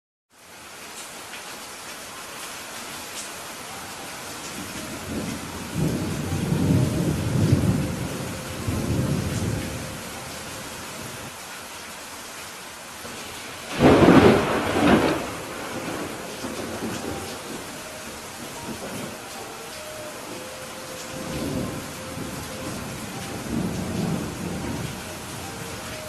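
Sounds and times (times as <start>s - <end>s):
steady rain: 0.3s - 26.0s
thunder rumbling: 4.6s - 11.3s, 13.1s - 26.0s
sharp thunderclap: 13.7s - 17.6s.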